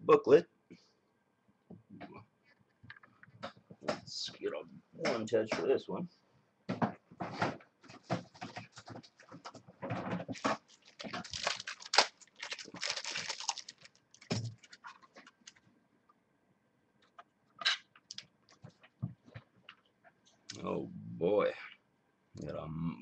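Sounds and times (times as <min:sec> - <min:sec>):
card rustling: 0:10.2 - 0:15.6.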